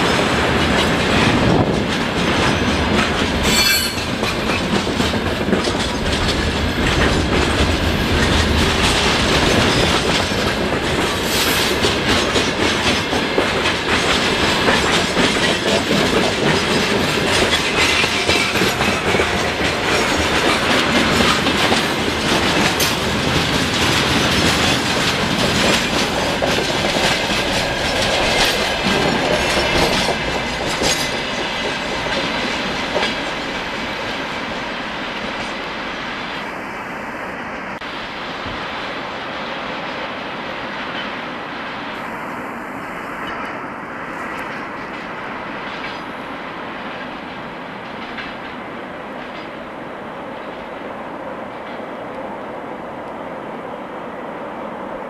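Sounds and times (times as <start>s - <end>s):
wheels clicking over rail joints: 0.0s - 34.3s, 44.4s - 49.7s
freight train steel rumble: 0.0s - 55.0s.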